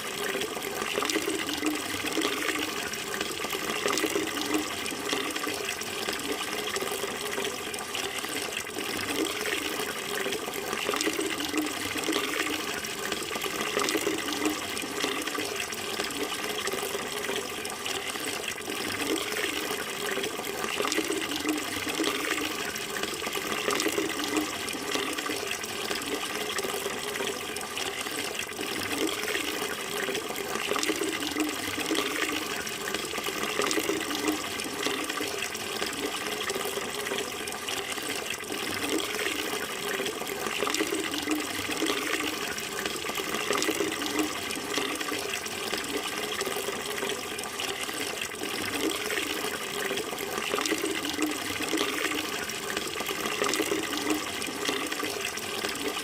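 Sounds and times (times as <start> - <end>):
running water splashing: 0.0 - 56.0.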